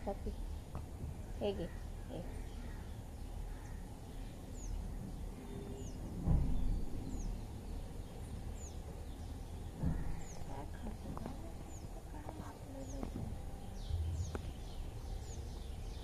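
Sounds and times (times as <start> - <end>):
low thump: 6.2 - 7.0.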